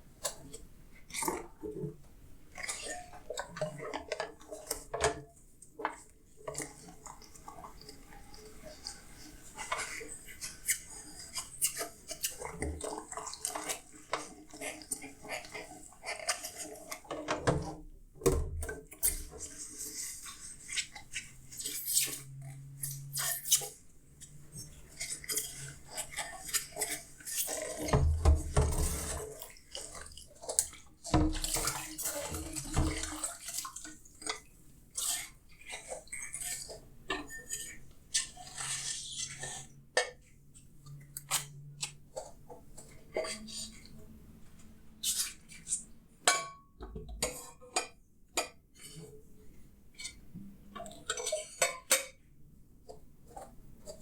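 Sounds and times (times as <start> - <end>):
water splashing in a sink: 0.2 - 39.8.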